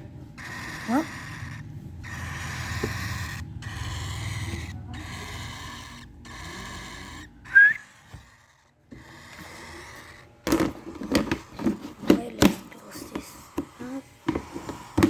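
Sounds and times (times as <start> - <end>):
cockatiels raspy hissing calls: 0.3 - 10.4, 12.8 - 15.0.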